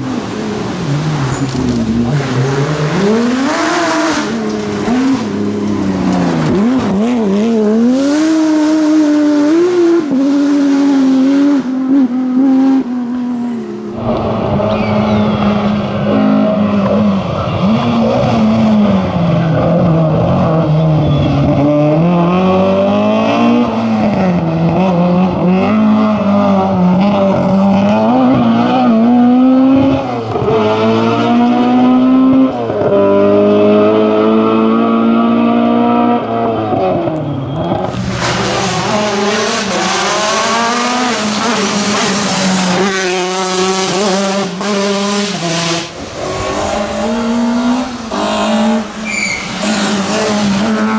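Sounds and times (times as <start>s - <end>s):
rally car engine revving: 0.0s - 50.9s
tyre squeal: 14.1s - 16.3s, 20.8s - 21.6s, 36.8s - 38.6s, 49.0s - 50.0s.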